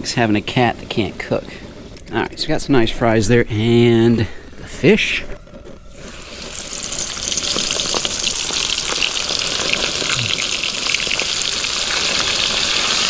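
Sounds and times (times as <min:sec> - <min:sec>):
fish frying in a pan: 0:05.9 - 0:13.0.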